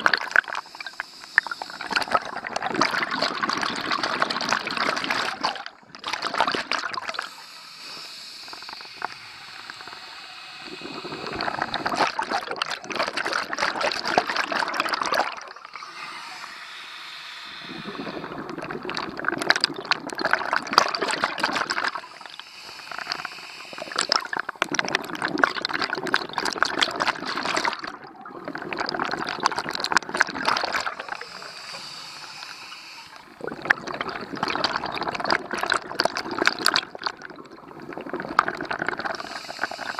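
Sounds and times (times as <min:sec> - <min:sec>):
bubbling exhalations underwater: 0:00.0 - 0:07.4, 0:08.4 - 0:16.6, 0:17.5 - 0:39.9
hissing regulator inhalations: 0:00.4 - 0:02.2, 0:07.0 - 0:12.4, 0:15.7 - 0:19.3, 0:21.5 - 0:24.6, 0:30.6 - 0:33.6, 0:38.8 - 0:39.9.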